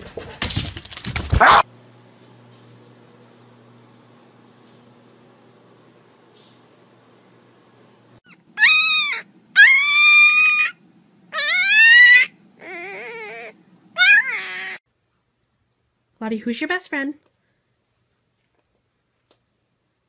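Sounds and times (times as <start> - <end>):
puppy howling: 1.4 - 1.7, 8.3 - 14.8.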